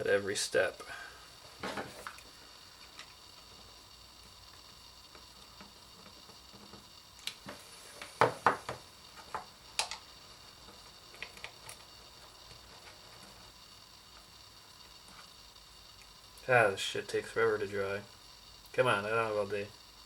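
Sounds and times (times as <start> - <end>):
faint steady hum: 0.0 - 20.0
hard small objects clicking: 4.4 - 12.6.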